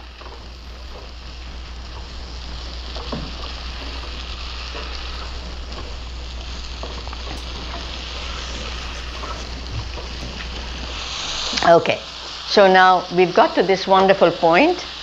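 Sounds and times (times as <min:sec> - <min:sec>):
mushrooms sizzling in a skillet: 0:00.0 - 0:15.0
spatula scraping a pan: 0:06.4 - 0:12.4.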